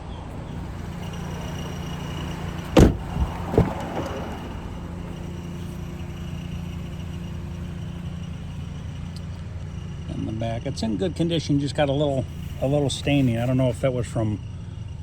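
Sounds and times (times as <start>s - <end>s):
low steady hum: 0.2s - 13.7s
car door shutting: 0.3s - 10.0s.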